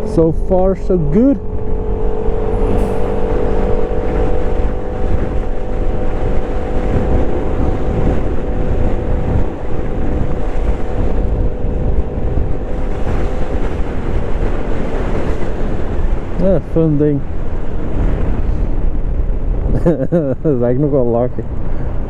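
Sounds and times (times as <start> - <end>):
scooter engine humming: 0.0 - 19.7
wind buffeting microphone: 0.0 - 22.0.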